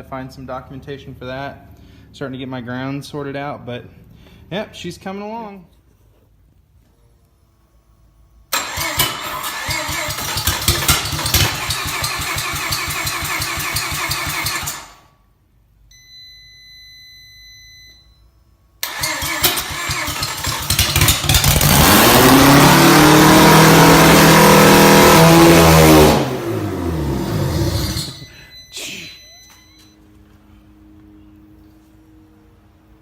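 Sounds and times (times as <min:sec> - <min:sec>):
starter cranking engine: 0:08.5 - 0:15.0, 0:18.8 - 0:26.3, 0:27.0 - 0:28.3.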